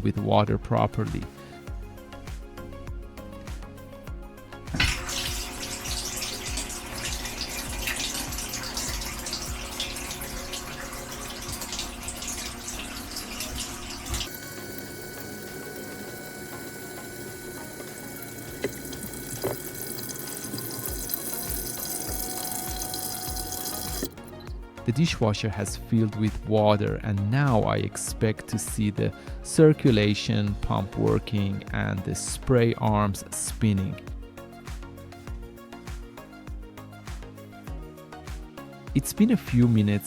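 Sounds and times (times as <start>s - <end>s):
water rushing into dishwasher: 4.7s - 24.2s.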